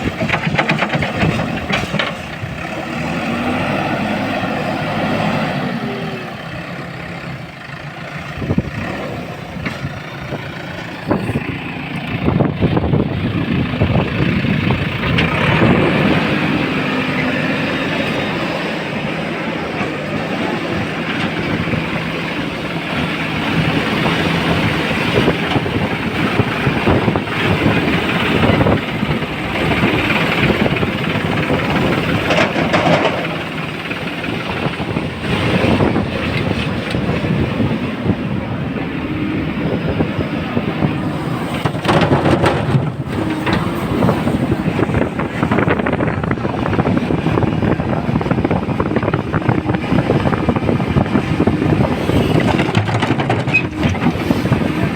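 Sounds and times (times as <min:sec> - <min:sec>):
heavy diesel machinery rumbling: 0:00.0 - 0:54.9
loud knocks and clanks: 0:41.5 - 0:44.4.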